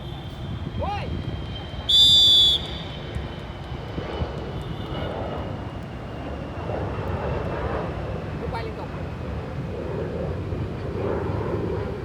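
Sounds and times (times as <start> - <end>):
referee's whistle blast: 1.9 - 2.8.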